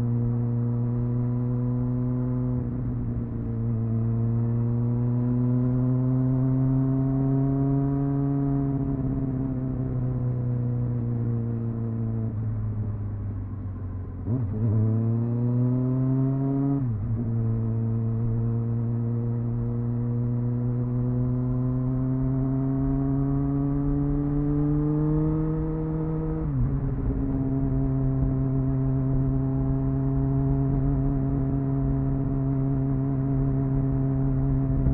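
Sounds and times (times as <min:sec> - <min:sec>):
motorcycle engine: 0:14.0 - 0:34.9.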